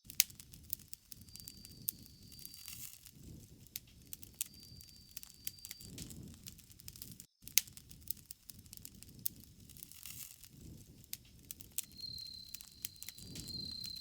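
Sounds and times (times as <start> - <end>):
campfire crackling: 0.0 - 14.0
high insect trill: 0.4 - 7.3, 10.7 - 14.0.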